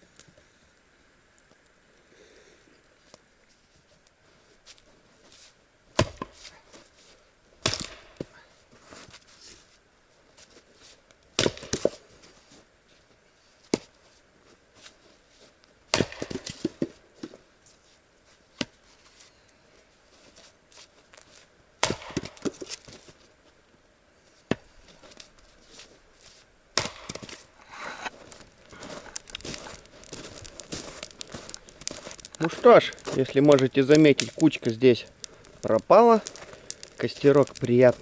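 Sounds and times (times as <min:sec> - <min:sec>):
firewood logs knocking together: 0:06.0 - 0:06.5, 0:07.6 - 0:08.4, 0:11.4 - 0:12.0, 0:15.9 - 0:17.4, 0:21.8 - 0:23.2, 0:26.8 - 0:38.0.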